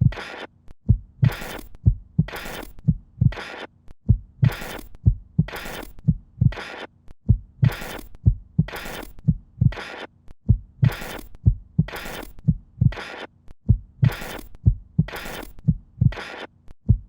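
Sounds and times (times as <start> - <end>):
deep heartbeat-like thumps: 0.0 - 0.2, 0.9 - 3.4, 4.0 - 6.6, 7.2 - 9.8, 10.4 - 13.0, 13.6 - 16.2.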